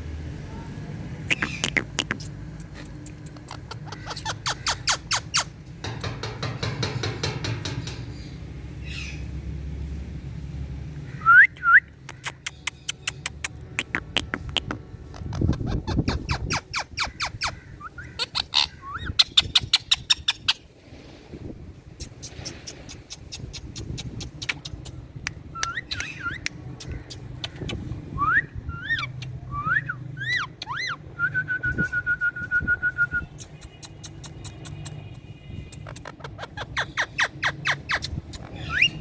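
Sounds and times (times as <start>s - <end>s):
parakeet whistling: 1.3s - 2.3s
parakeet rapid clicks: 1.3s - 8.0s, 12.1s - 14.8s, 23.6s - 27.8s, 33.4s - 36.2s.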